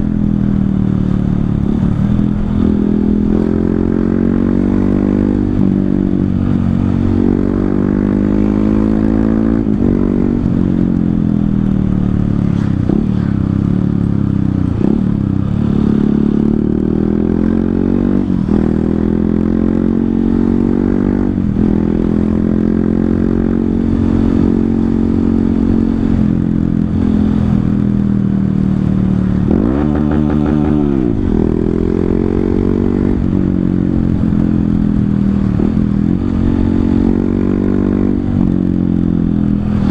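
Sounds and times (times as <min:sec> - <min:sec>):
motorcycle engine through gears: 0:00.0 - 0:39.9.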